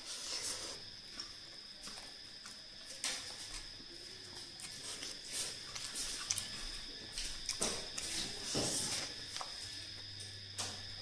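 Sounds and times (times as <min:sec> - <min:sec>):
chewing and mouth smacks: 0:04.5 - 0:10.1.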